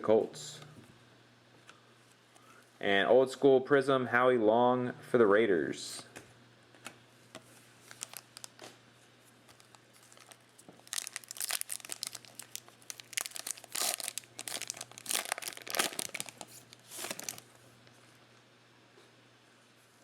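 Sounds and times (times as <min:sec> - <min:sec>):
faint steady hum: 0:00.0 - 0:20.0
wrapper crinkling and tearing: 0:07.8 - 0:08.7, 0:09.4 - 0:17.6.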